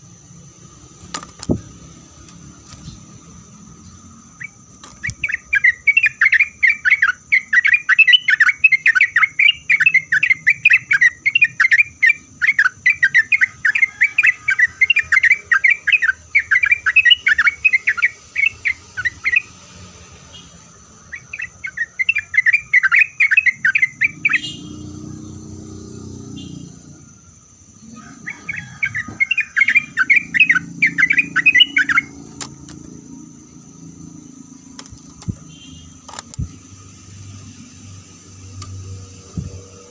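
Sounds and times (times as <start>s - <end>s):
bird chattering song: 2.8s - 19.6s, 20.4s - 27.0s, 27.7s - 36.9s.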